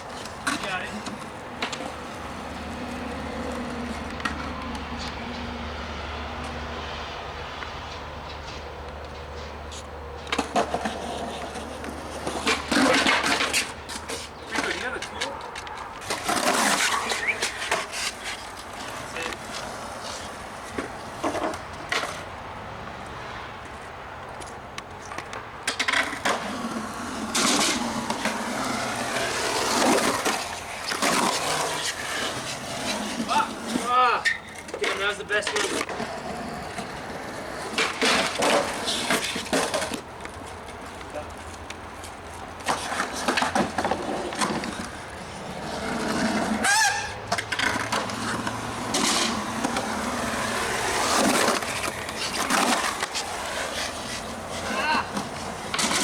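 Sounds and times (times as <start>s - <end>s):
skateboard wheels rolling: 0.0s - 56.0s
skateboard clacks and impacts: 42.6s - 56.0s
honk-like squeal: 46.6s - 47.2s.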